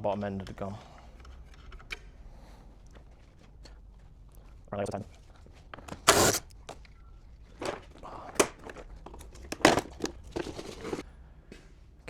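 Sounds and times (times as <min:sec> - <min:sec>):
wiring loom crinkling and rustling: 0:04.4 - 0:11.0.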